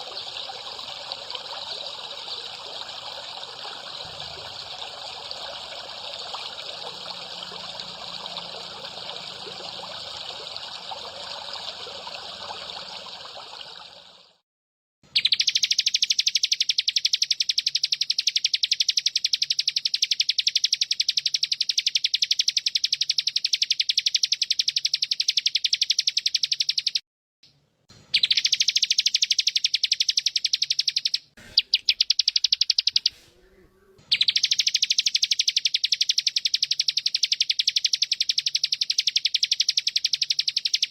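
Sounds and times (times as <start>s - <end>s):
recorded bird call trill: 0.0s - 14.2s, 15.1s - 27.0s, 28.0s - 40.9s
trickling water: 0.0s - 14.4s, 34.2s - 40.9s.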